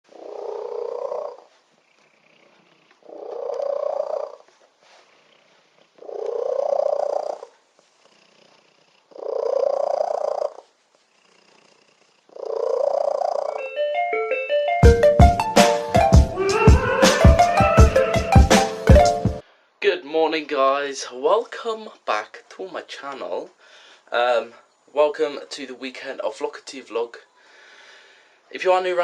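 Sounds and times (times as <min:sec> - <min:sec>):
cat purring loudly: 0:00.1 - 0:13.6.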